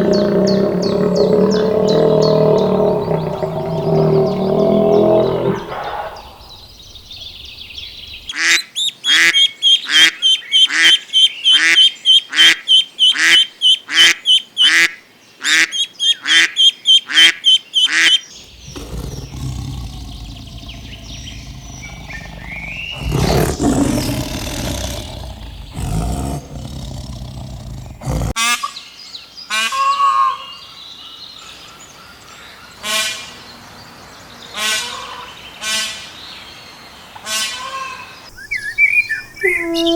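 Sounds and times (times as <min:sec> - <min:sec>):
birds calling: 0:00.0 - 0:28.4.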